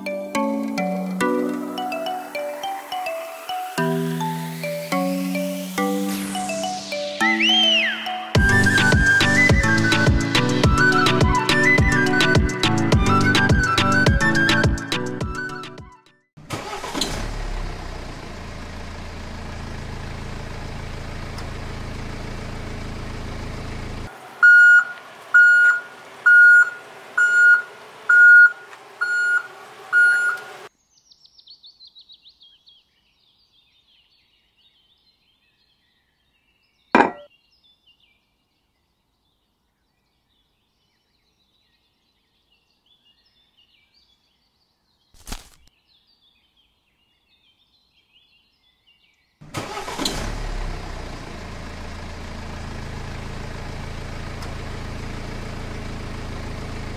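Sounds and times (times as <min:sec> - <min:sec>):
reversing beeps: 0:24.4 - 0:30.4
sharp knock: 0:37.0 - 0:37.3.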